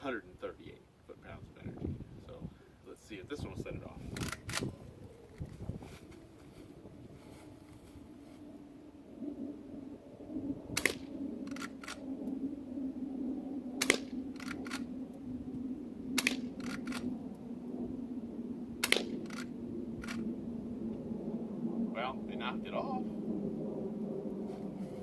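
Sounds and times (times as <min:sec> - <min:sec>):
low hum: 0:00.0 - 0:25.0
quiet rifle shots: 0:10.8 - 0:12.0, 0:13.8 - 0:14.9, 0:16.2 - 0:17.1, 0:18.8 - 0:20.2
faint clicks: 0:10.8 - 0:12.4.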